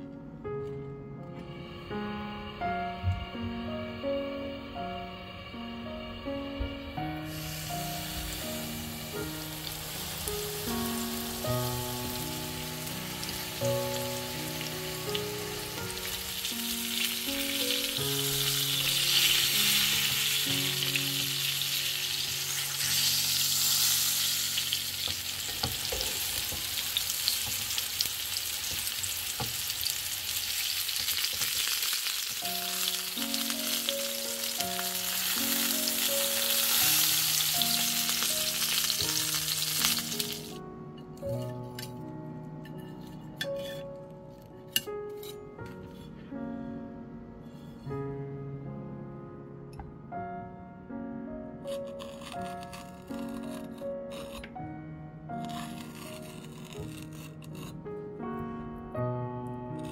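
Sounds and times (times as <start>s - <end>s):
soft background music: 0.0s - 59.9s
chicken sizzling in hot oil: 7.2s - 40.6s.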